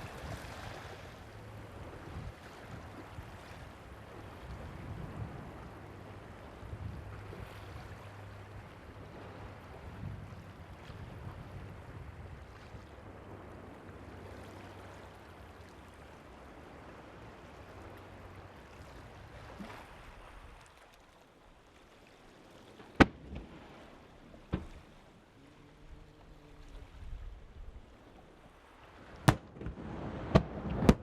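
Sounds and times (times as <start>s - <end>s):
surf: 0.0s - 31.0s
wind: 0.0s - 31.0s
firework explosions: 23.0s - 23.5s, 29.2s - 31.0s
faint low hum: 24.2s - 28.3s.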